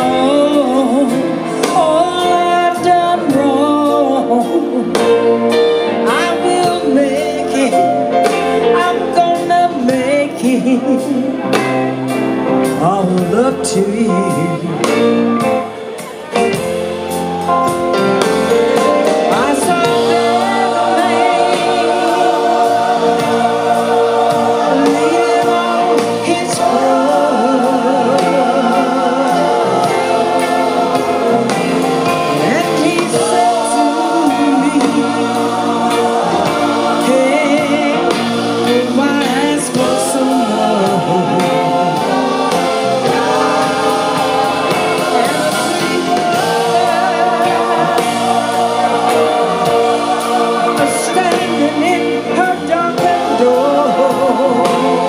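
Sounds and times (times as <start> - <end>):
live band music: 0.0 - 55.0
backing singers holding notes: 14.6 - 55.0.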